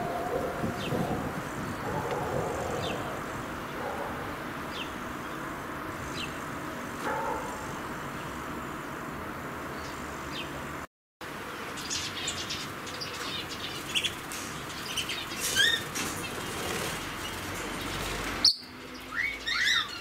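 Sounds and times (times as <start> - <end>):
bird chirping: 17.2 - 20.0.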